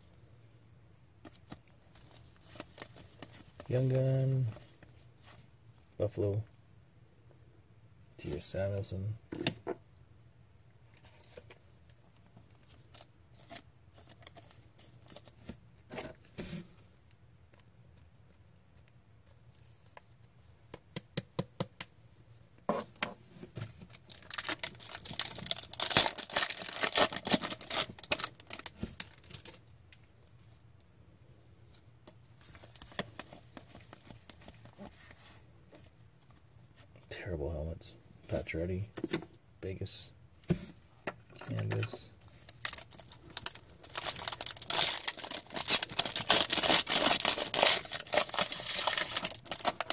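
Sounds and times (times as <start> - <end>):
wrappers crinkling: 24.0 - 29.6, 42.3 - 49.9.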